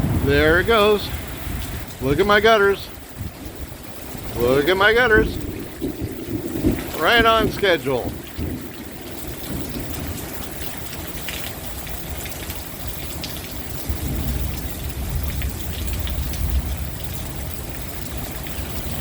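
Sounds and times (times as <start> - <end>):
low rumble: 0.0 - 2.2, 5.1 - 11.1
drops ticking: 0.0 - 19.0
torrential rain: 0.0 - 19.0
water spilling from gutters: 0.0 - 19.0.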